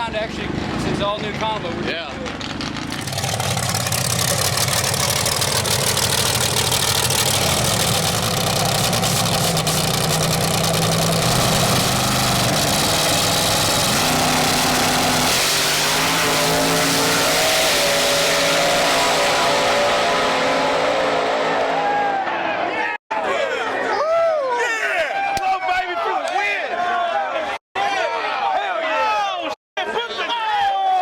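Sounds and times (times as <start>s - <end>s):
loud racing engine running hard: 0.4s - 22.3s.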